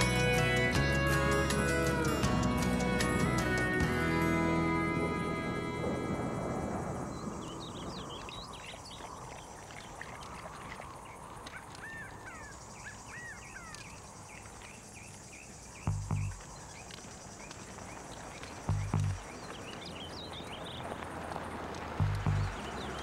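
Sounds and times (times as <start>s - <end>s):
song music: 0.0s - 6.6s
birds chirping: 0.0s - 23.0s
dull low thuds: 15.9s - 16.4s, 18.7s - 19.3s, 22.0s - 22.6s.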